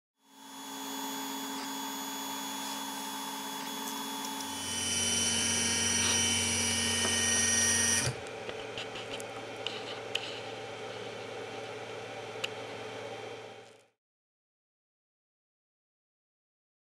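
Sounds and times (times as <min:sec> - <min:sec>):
three d printer motors whining: 0:00.4 - 0:10.5.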